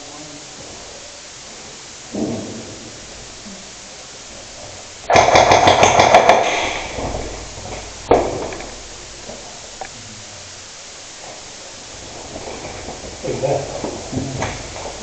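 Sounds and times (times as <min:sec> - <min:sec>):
sharp echoing crack: 0:05.0 - 0:10.0
airsoft gun shots echoing: 0:05.1 - 0:08.9.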